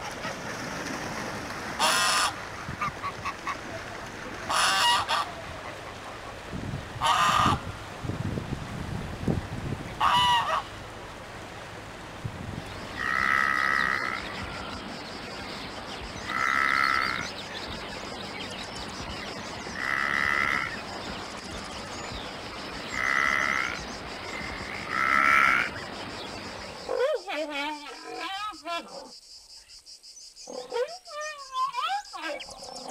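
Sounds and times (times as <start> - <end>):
steady background hiss: 0.0 - 32.9
antelope calling: 1.8 - 3.6, 4.5 - 6.4, 12.8 - 21.8, 22.5 - 29.1.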